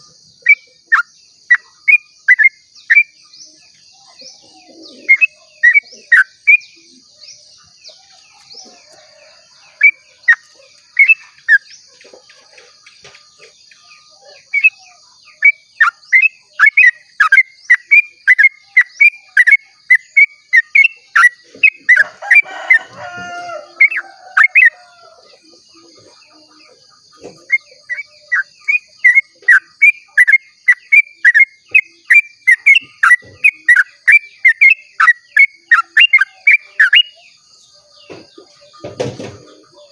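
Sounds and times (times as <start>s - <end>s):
bird singing rapid chirps: 0.0s - 39.9s
lower bird call: 13.9s - 26.6s.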